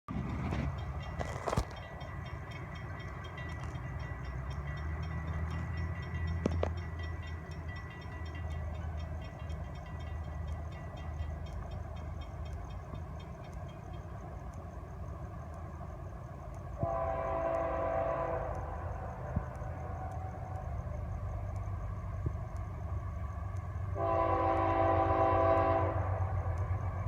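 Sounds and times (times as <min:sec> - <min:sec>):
locomotive engine rumble: 0:00.1 - 0:27.0.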